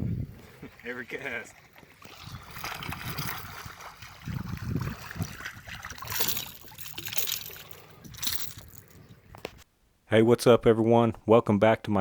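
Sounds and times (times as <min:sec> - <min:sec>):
water splashing around a boat: 0:00.3 - 0:08.6.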